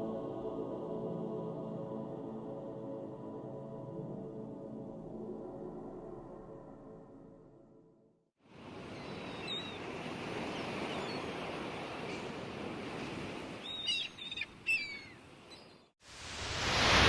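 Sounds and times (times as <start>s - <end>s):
surf washing: 8.5s - 15.5s, 16.1s - 17.0s
small birds chirping: 8.9s - 9.8s, 13.6s - 15.9s.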